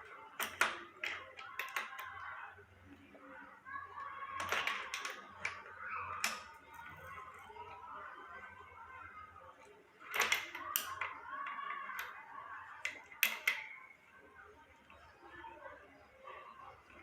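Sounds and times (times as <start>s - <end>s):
metal parts clicking and knocking: 0.3s - 2.2s, 4.4s - 6.8s, 10.0s - 12.2s, 12.8s - 13.7s.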